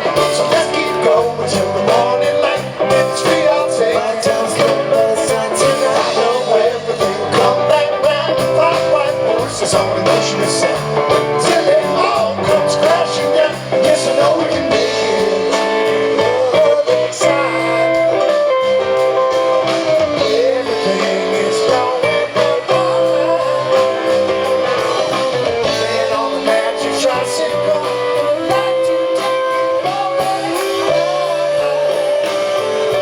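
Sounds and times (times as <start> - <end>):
live rock band playing: 0.0 - 33.0.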